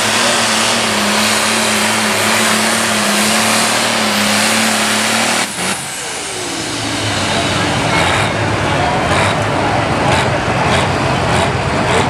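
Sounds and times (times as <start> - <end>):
tractor engine running flat out: 0.0 - 12.0.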